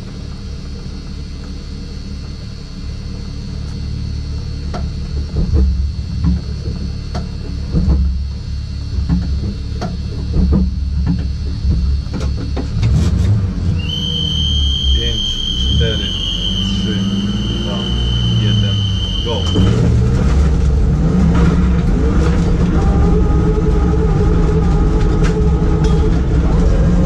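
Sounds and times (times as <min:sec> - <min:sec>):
car engine rumbling: 0:00.0 - 0:27.0
sharp clicks and knocks: 0:04.7 - 0:13.4.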